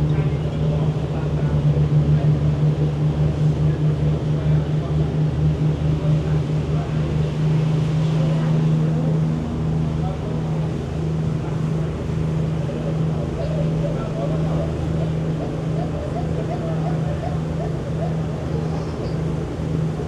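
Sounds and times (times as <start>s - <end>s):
boat engine droning: 0.0s - 20.0s
wind: 0.0s - 20.0s.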